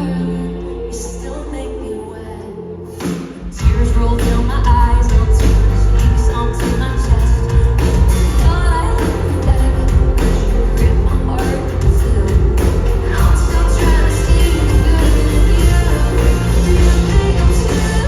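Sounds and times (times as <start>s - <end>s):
pop-rock band playing: 2.9s - 18.0s
person singing: 3.6s - 18.0s.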